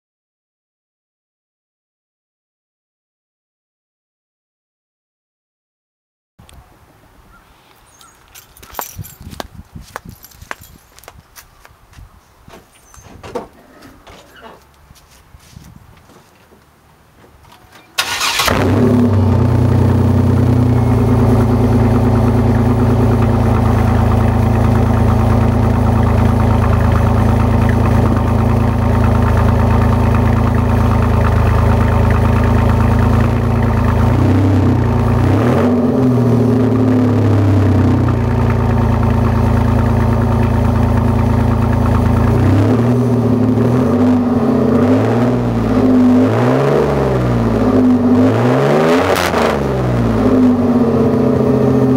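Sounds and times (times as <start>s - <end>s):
car engine idling and revving: 17.5s - 51.9s.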